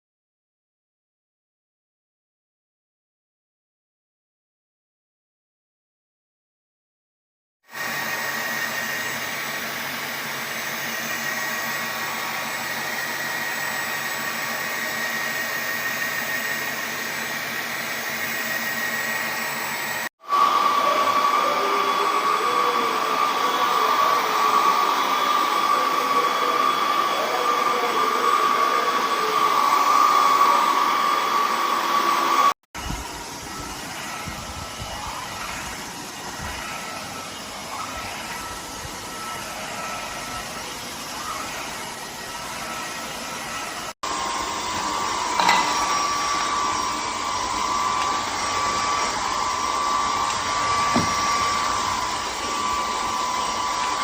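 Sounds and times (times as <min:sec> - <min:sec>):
vacuum mop whining hum: 0:07.7 - 0:54.0.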